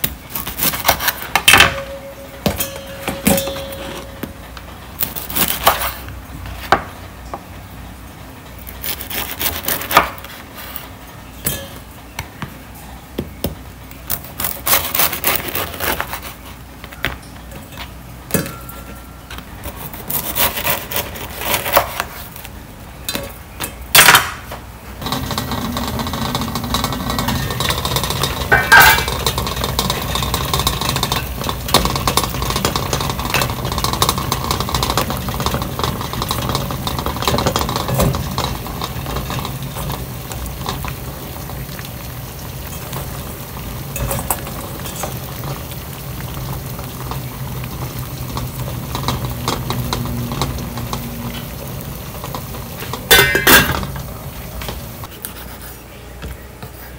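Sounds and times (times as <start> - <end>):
water boiling in a pot: 0.0 - 55.2
clink against steel pot: 1.5 - 4.3
knife sawing through bread: 8.8 - 10.0, 19.7 - 22.0.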